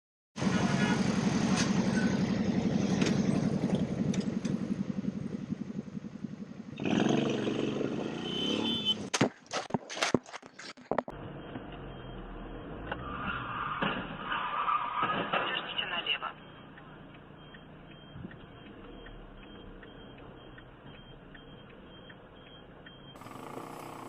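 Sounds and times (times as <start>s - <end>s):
motorcycle engine running: 0.4s - 9.1s, 23.2s - 24.0s.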